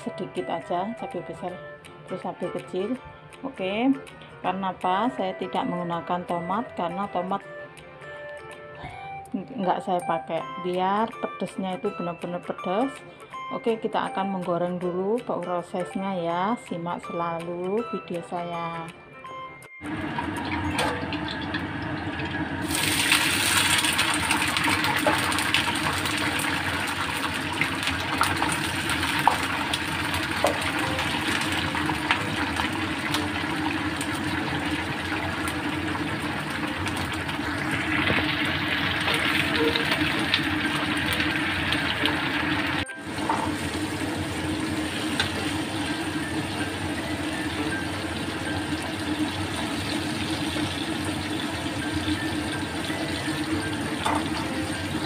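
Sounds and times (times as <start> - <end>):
food sizzling in a wok: 19.9 - 55.0.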